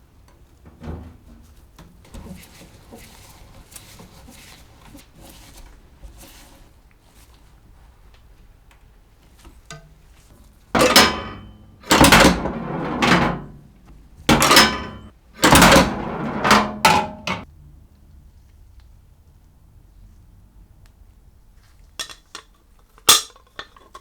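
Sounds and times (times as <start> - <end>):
loud mechanical clunks: 10.8 - 17.4.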